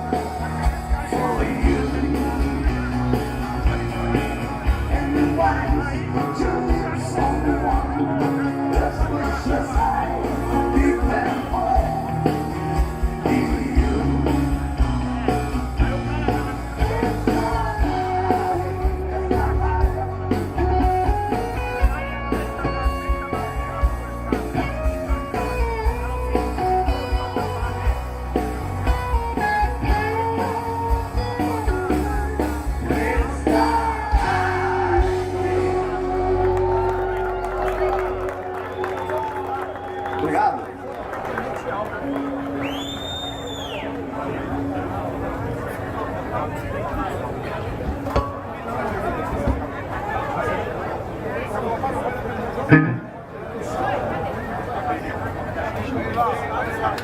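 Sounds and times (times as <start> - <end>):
person singing: 0.0 - 3.1, 4.6 - 14.6, 16.8 - 20.2, 30.0 - 37.5
electric guitar: 0.0 - 50.6, 52.5 - 53.4
bass guitar: 0.0 - 51.1, 52.6 - 53.3.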